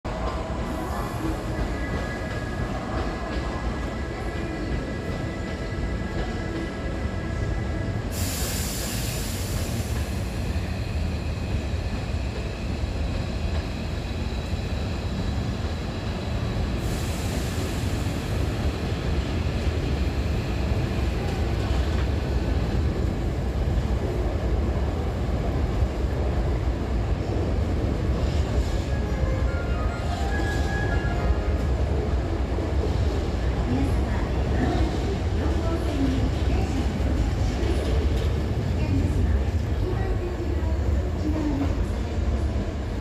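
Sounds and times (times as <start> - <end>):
electric train rumble: 0.1 - 43.0
sudden hiss: 8.1 - 10.4.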